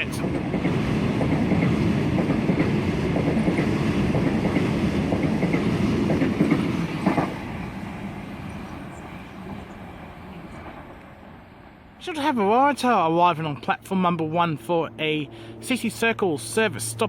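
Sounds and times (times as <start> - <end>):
train wheels clacking over rail joints: 0.1 - 7.5.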